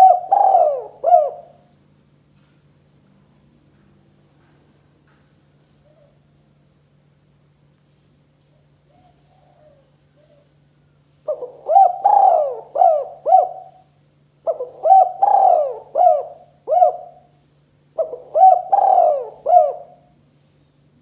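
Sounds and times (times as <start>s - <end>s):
dove cooing: 0.0s - 1.7s, 8.9s - 10.5s, 11.2s - 17.4s, 18.0s - 20.2s
steady low hum: 0.0s - 21.0s.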